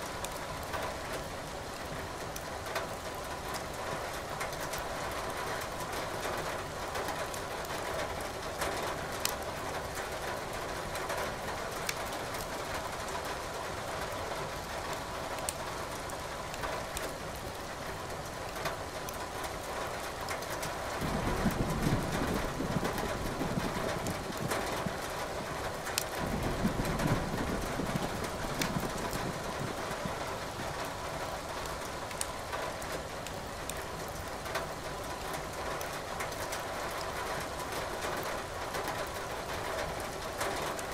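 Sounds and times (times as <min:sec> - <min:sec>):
steady rain hiss: 0:00.0 - 0:40.9
firewood crackling in fireplace: 0:09.2 - 0:10.6, 0:11.3 - 0:13.6, 0:14.8 - 0:40.9
low thunder rumble: 0:20.9 - 0:31.2.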